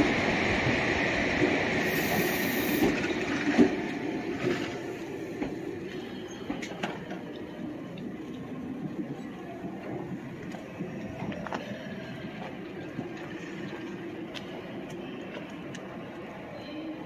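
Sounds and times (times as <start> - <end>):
train wheels rumbling and clacking: 0.0 - 16.5
brief high hiss: 1.9 - 3.0.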